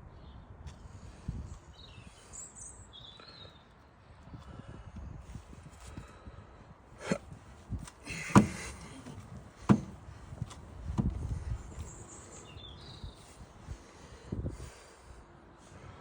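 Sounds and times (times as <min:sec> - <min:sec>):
irregular knocks and clunks: 0:08.1 - 0:11.4.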